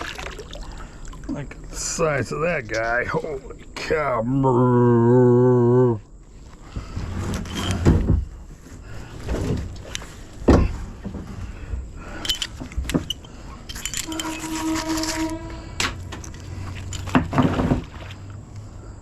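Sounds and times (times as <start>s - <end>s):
scrap metal knocking and clanking: 7.0s - 8.3s
brief squealing tone: 14.0s - 15.8s.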